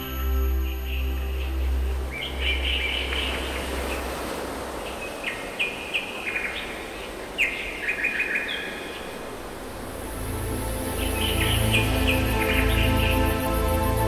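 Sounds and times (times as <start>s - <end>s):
low music drone: 0.0s - 4.8s, 9.3s - 14.0s.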